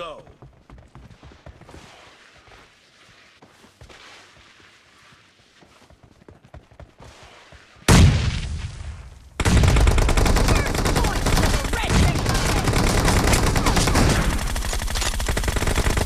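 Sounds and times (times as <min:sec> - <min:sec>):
loud gunshot blast: 0:07.9 - 0:08.9
automatic gunfire: 0:09.4 - 0:16.0.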